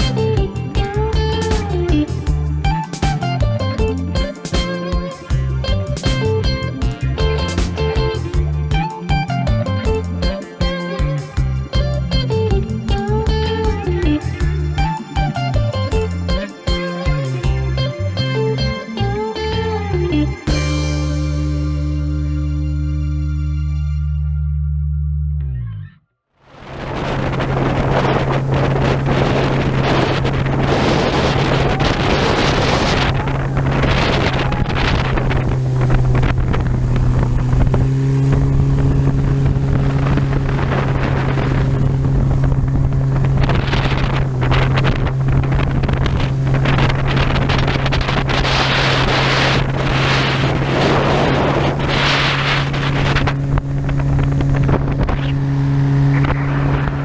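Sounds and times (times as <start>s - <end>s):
wind buffeting microphone: 26.6s - 57.0s
motorboat engine running: 26.7s - 57.0s.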